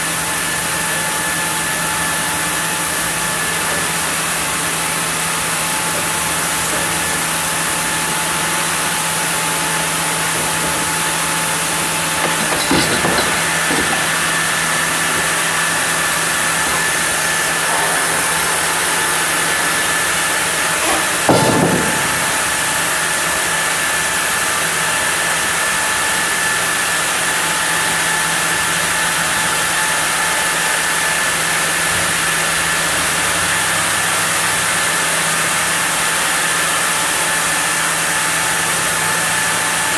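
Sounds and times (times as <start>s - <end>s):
sawmill saw cutting wood: 0.0s - 24.0s.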